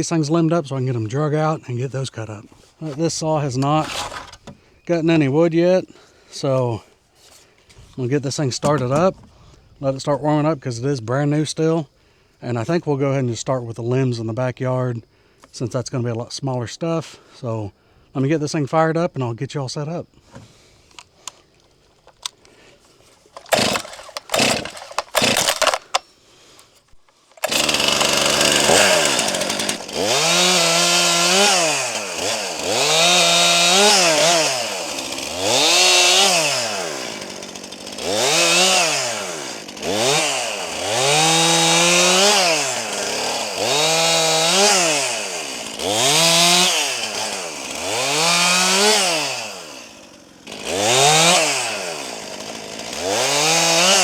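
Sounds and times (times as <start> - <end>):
chainsaw engine revving: 2.2 - 4.5, 23.4 - 26.0, 27.4 - 54.0
chainsaw starter pulls: 2.2 - 4.6, 7.8 - 9.6, 20.4 - 54.0.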